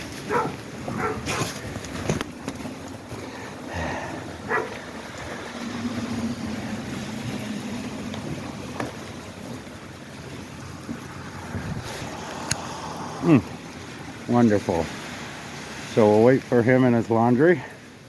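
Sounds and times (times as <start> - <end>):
dog barking: 0.2 - 1.6, 4.5 - 4.8.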